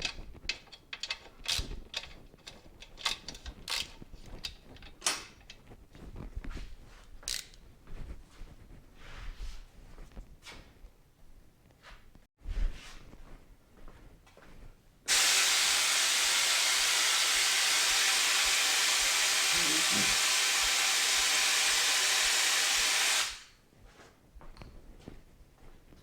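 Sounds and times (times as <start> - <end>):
pressurised jet hissing: 15.1 - 23.5.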